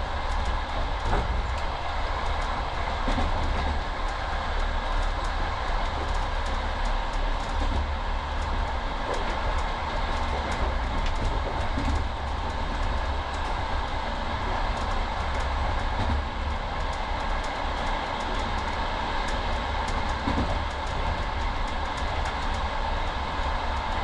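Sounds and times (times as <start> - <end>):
train running rumble: 0.0 - 24.0
light ticks: 14.8 - 22.7.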